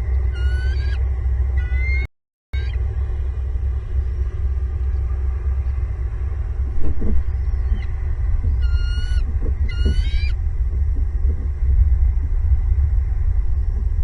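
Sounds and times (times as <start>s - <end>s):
low rumble: 0.0s - 14.0s
eagle calling: 0.3s - 1.0s, 1.6s - 2.8s, 7.5s - 10.4s.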